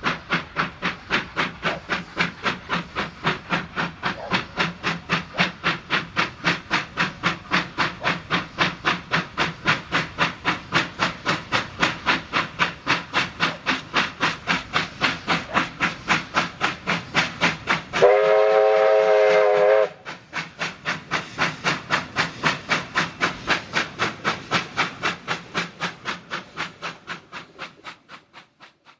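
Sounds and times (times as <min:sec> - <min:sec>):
steam locomotive exhaust beats: 0:00.0 - 0:28.9
steam whistle: 0:17.9 - 0:20.1.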